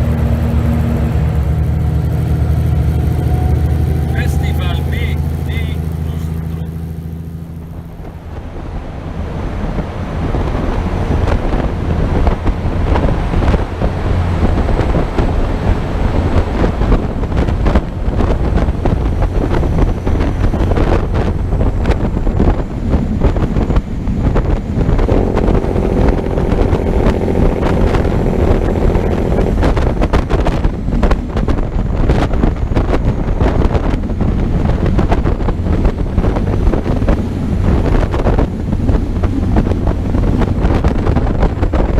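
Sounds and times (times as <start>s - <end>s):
steady pitched hum: 0.0s - 9.0s
low vehicle rumble: 0.0s - 41.9s
wind buffeting microphone: 0.0s - 41.9s.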